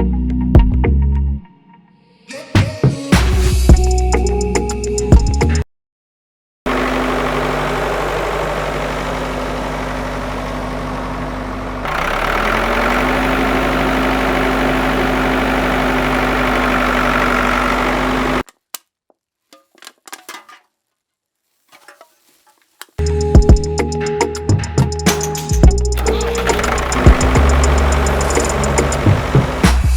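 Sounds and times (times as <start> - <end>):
small motor running: 6.7 - 18.4, 26.0 - 29.9.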